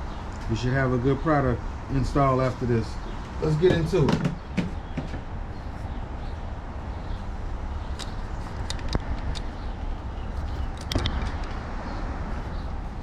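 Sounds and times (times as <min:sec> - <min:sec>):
tools clicking and knocking: 0:10.4 - 0:11.6.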